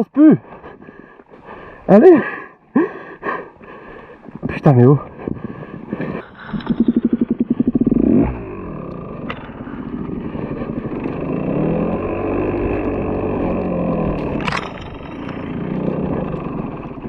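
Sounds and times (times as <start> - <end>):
two-stroke motorcycle engine revving: 6.4 - 17.0.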